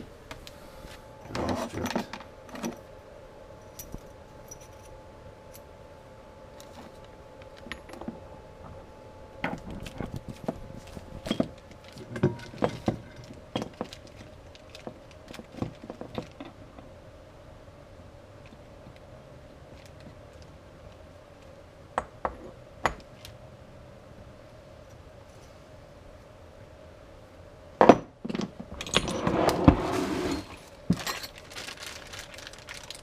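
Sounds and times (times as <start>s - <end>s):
faint steady hum: 0.0s - 33.0s
metal parts clinking and rattling: 3.7s - 4.9s, 9.4s - 16.6s, 28.3s - 29.4s, 30.1s - 33.0s.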